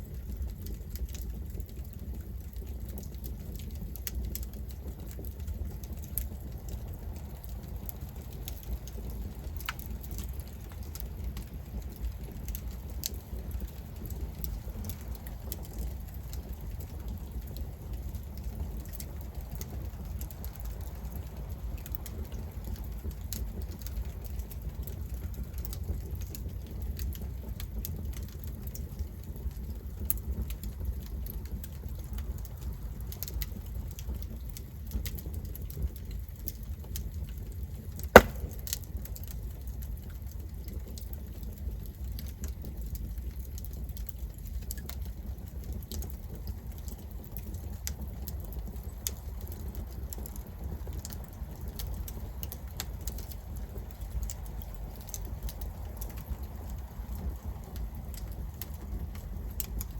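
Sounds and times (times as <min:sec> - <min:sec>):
campfire wood crackling: 0:00.0 - 0:37.4, 0:38.2 - 0:39.3, 0:40.2 - 0:59.9
loud sharp pop: 0:38.2 - 0:38.7.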